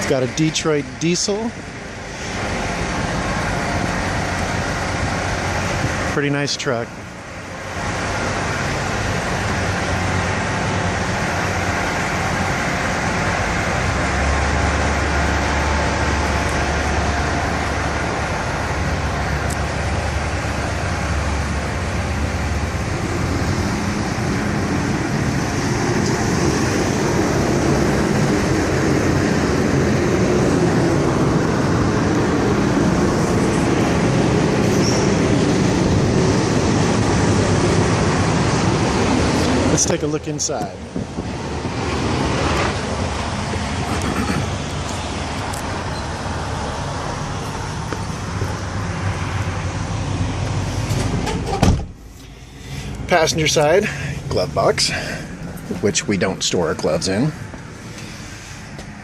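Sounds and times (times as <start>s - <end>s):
truck diesel engine idling: 0.0s - 38.8s, 52.0s - 59.0s.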